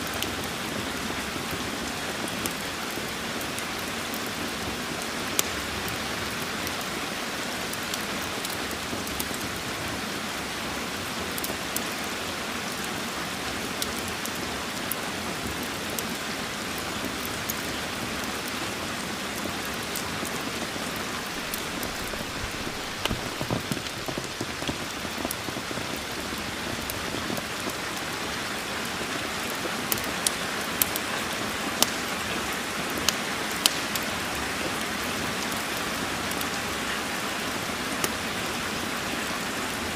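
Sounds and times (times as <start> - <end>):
steady rain: 0.0 - 39.9
wood fire crackling and popping: 1.2 - 6.9, 11.3 - 36.6.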